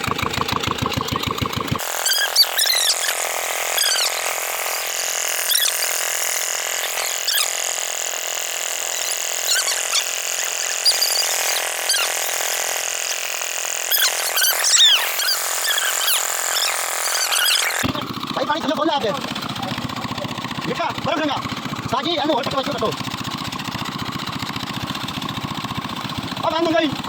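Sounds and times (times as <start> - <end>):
diesel pump engine thumping: 0.0 - 1.8
short high squeaks: 1.8 - 17.8.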